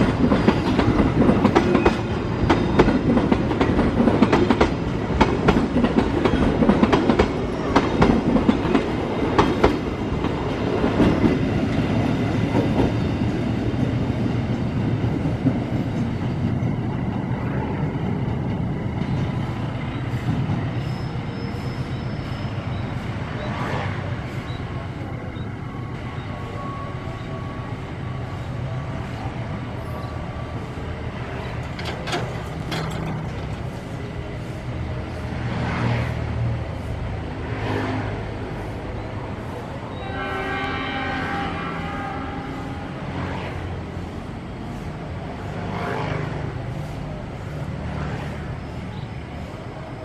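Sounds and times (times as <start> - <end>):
train rumbling on rails: 0.0 - 50.0
locomotive horn: 39.9 - 43.4.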